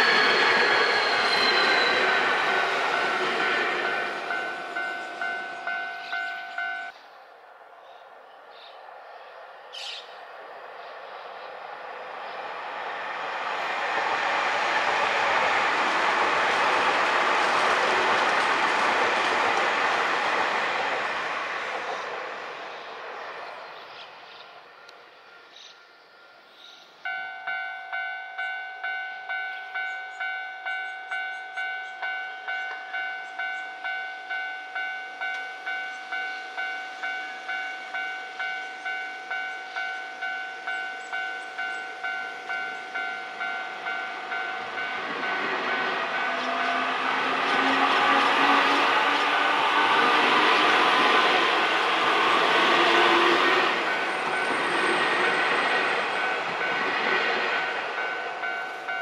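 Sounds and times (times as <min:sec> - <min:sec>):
level crossing warning bell: 0:00.0 - 0:07.0, 0:24.8 - 0:59.0
electric train passing: 0:00.0 - 0:59.0.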